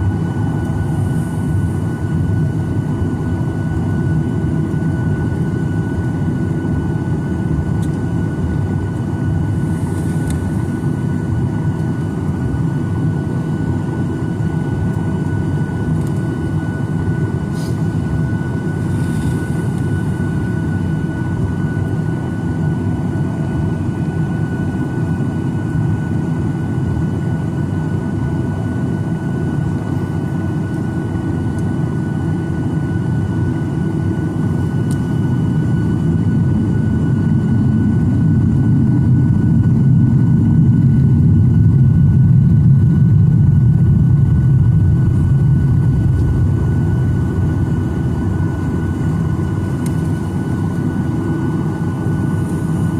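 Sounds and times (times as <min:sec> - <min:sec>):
jet engine cabin rumble: 0:00.0 - 0:52.9
thin jet engine whine: 0:00.0 - 0:52.9.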